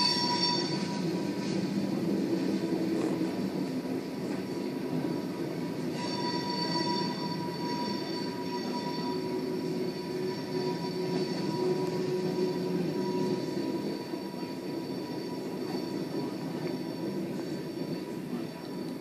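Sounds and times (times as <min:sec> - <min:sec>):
wheels rumbling on rail: 0:00.0 - 0:19.0
high-pitched wheel squeals: 0:05.0 - 0:19.0.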